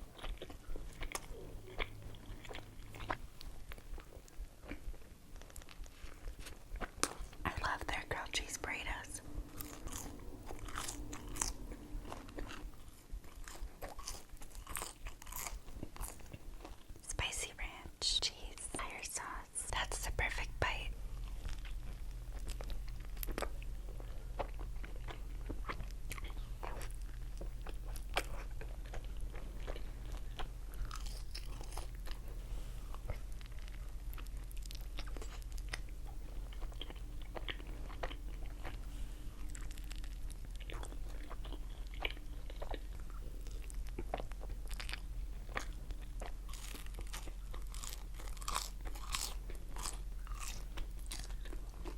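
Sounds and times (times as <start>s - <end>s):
person chewing crunchy food: 0.0s - 17.7s, 20.7s - 51.9s
low hum: 0.0s - 51.9s.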